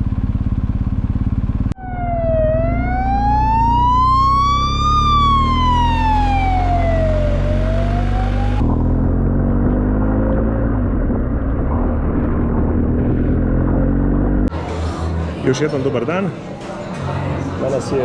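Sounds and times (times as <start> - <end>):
motorcycle engine running: 0.0 - 14.7
low engine rumble: 0.0 - 18.0
emergency vehicle siren wailing: 1.8 - 9.4.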